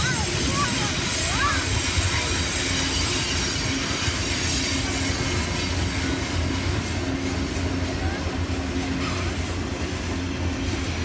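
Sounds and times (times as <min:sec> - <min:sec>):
train wheels rumbling on rails: 0:00.0 - 0:11.0
faint high wheel squeal: 0:01.3 - 0:07.1.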